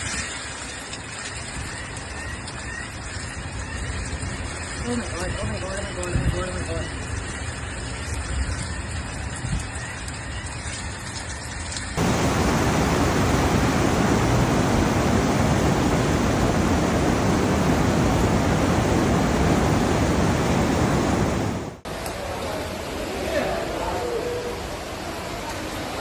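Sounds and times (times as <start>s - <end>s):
heavy torrential rain: 11.8s - 23.0s.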